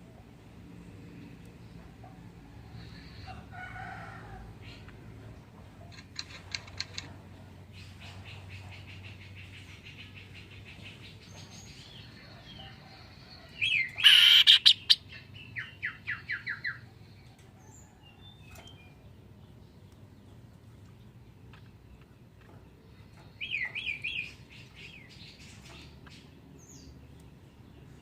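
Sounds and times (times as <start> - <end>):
songbird chirping and trilling: 5.9 - 28.0.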